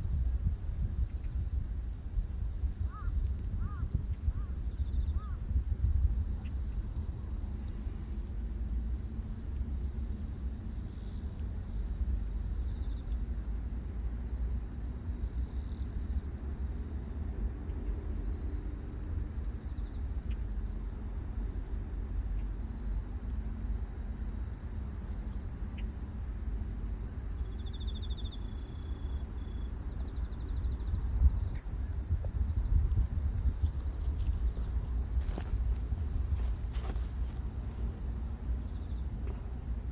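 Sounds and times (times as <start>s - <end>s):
insect chirping in pulses: 25.6s - 39.9s.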